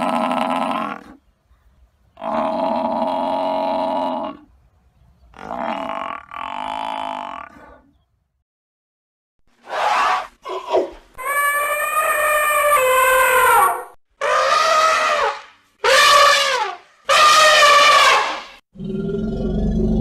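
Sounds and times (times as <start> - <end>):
elephant trumpeting: 9.6 - 18.6.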